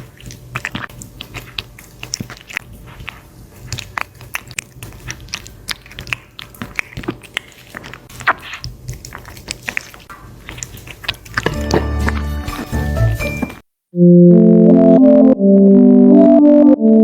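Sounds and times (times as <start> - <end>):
animal chewing and crunching: 0.0 - 13.6.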